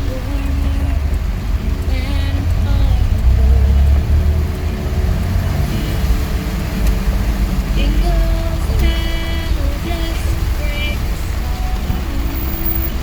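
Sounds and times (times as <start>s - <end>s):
car engine and tyres rumbling: 0.0s - 13.0s
faint car radio: 0.0s - 13.0s.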